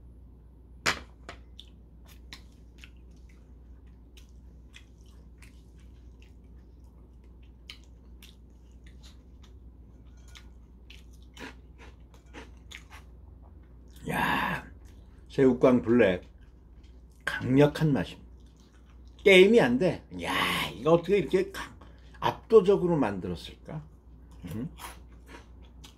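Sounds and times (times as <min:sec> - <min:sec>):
chewing crisp food: 0:01.4 - 0:19.9, 0:23.8 - 0:25.9.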